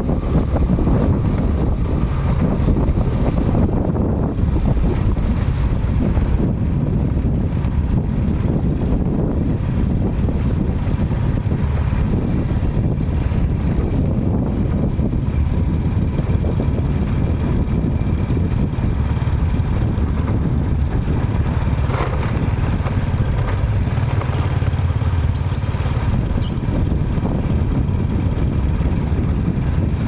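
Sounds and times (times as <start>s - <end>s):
low outdoor rumble: 0.0s - 30.0s
high bird chirps: 24.8s - 26.7s.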